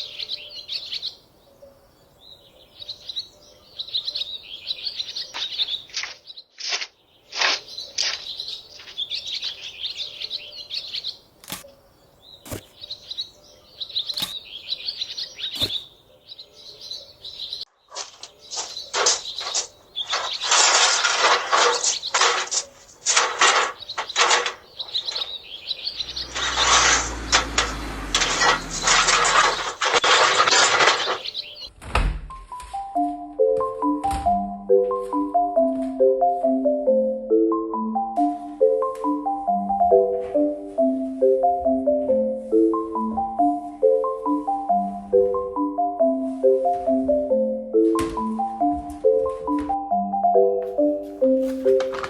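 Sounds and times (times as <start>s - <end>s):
small birds chirping: 0.0s - 31.7s
crackling hiss with sharp pops: 17.9s - 25.2s.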